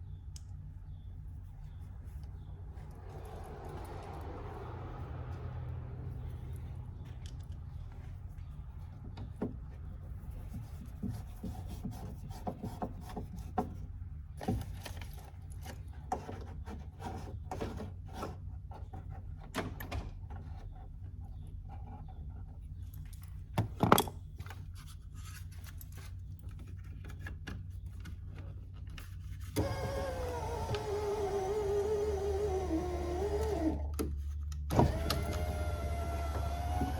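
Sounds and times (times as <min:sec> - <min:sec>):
power window motor whining: 0:29.6 - 0:34.0, 0:34.7 - 0:36.9.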